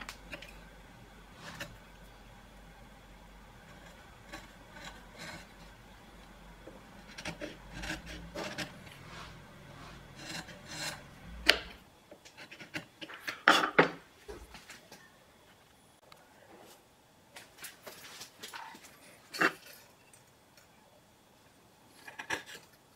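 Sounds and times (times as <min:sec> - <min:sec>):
hand tool rasping wood: 0:07.0 - 0:11.7.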